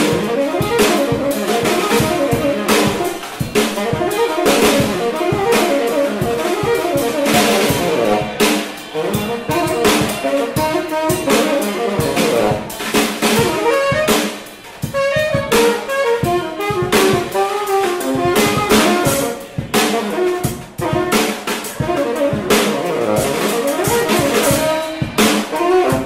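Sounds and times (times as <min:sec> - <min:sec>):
drum kit with cymbals: 0:00.0 - 0:26.0
saxophone playing quick notes: 0:00.0 - 0:26.0.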